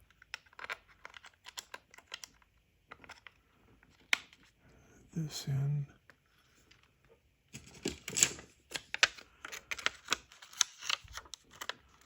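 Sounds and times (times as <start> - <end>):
small plastic parts clicking: 0.0 - 4.5, 7.5 - 12.0.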